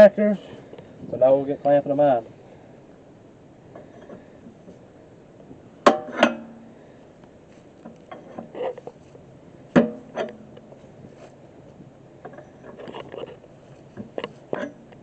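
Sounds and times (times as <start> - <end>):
metal clamps clanking: 9.7 - 10.6.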